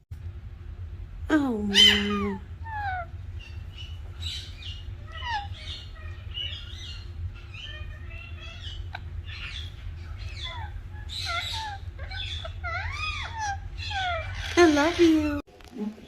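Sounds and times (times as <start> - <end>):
steady low hum: 0.0 - 16.0
parrot chirping and whistling: 1.7 - 15.1.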